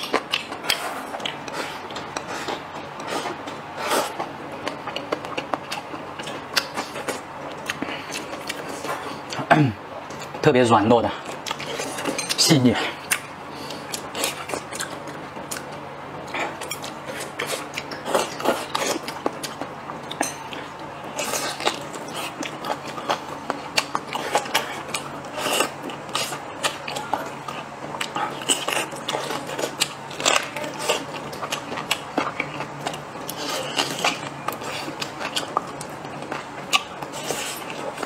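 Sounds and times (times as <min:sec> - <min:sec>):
wet chewing sounds: 0:00.0 - 0:10.4, 0:11.2 - 0:38.0.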